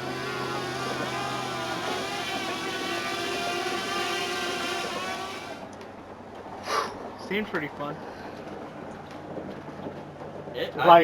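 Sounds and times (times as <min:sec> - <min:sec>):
outboard motor running: 0:00.0 - 0:05.9.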